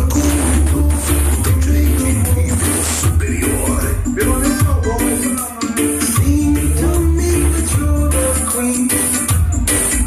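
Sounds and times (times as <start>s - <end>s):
bass line: 0.0s - 10.0s
reggae music on sound system: 0.0s - 10.0s.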